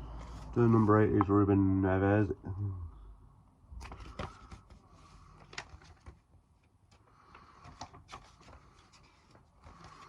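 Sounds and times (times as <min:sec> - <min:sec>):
paper pages rustling and turning: 0:00.1 - 0:01.3, 0:03.8 - 0:10.0.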